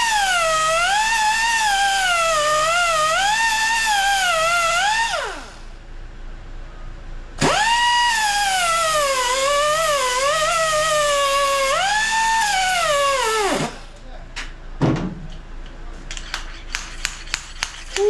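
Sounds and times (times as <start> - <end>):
angle grinder grinding metal: 8.2 - 13.8.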